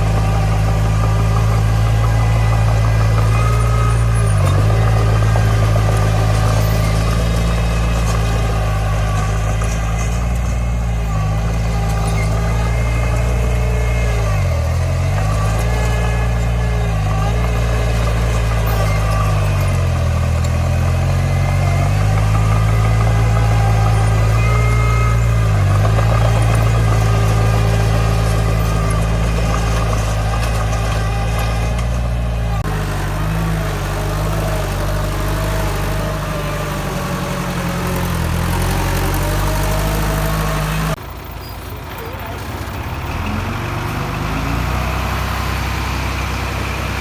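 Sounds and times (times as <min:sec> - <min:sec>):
heavy diesel engine running: 0:00.0 - 0:47.0.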